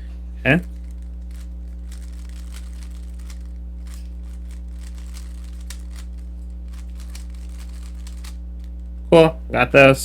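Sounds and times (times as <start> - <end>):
low electrical hum: 0.0 - 10.0
puzzle cube plastic clicks: 0.8 - 8.8.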